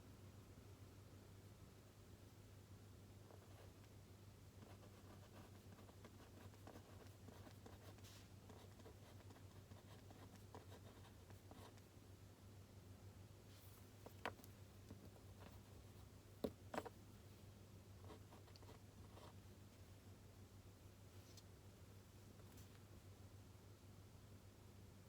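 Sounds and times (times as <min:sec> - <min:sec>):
low steady hum: 0:00.0 - 0:25.0
pen scratching on paper: 0:04.6 - 0:11.9, 0:14.0 - 0:17.0.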